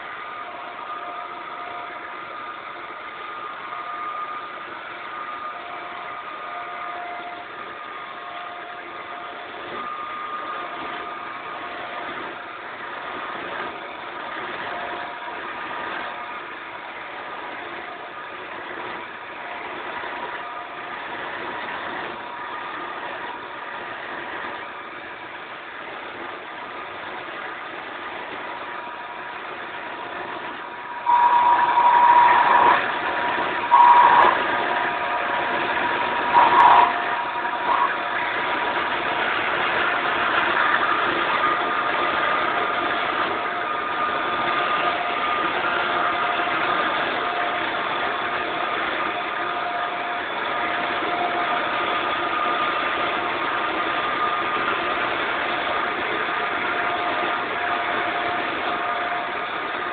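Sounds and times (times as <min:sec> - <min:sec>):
wood lathe humming: 0:28.4 - 0:59.9
shrill squeals: 0:30.8 - 0:38.4.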